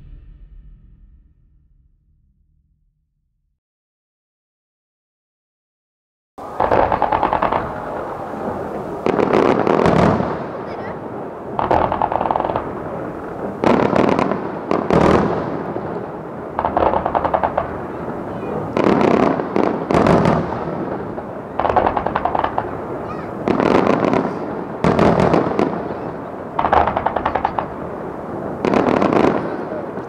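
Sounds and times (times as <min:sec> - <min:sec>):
echoing rumble: 0:00.0 - 0:03.5, 0:06.4 - 0:30.0
fireworks volleys: 0:06.4 - 0:30.0.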